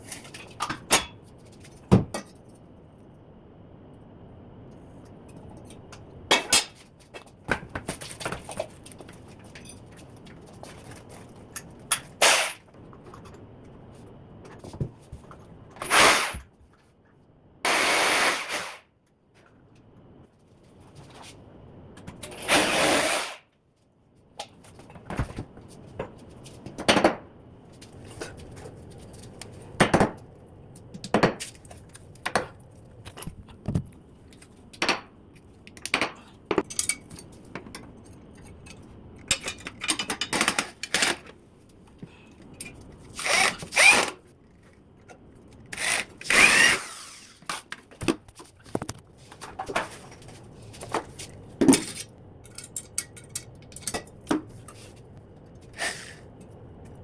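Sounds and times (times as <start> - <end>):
power drill running: 17.7 - 18.8, 43.2 - 44.1, 45.8 - 47.4.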